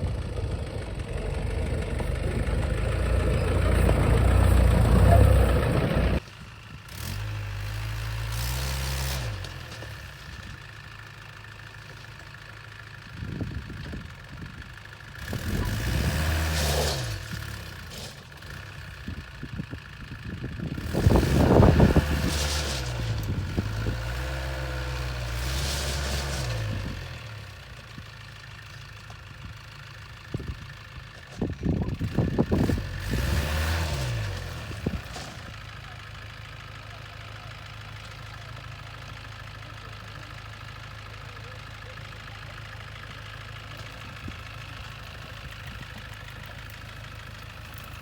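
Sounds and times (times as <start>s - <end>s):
engine revving: 0.0s - 6.2s, 6.9s - 10.1s, 15.2s - 18.8s, 20.7s - 27.6s, 31.9s - 35.6s.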